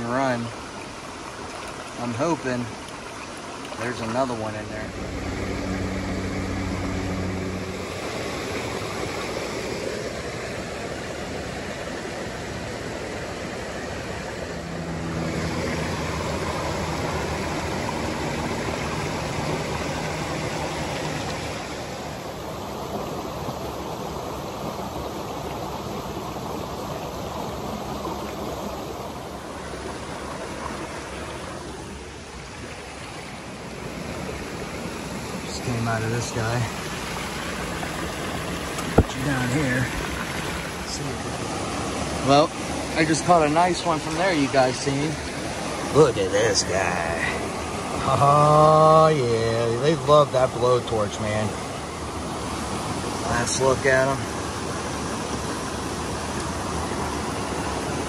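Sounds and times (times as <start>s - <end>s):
stream splashing over stones: 0.0s - 58.0s
low steady hum: 3.7s - 49.0s.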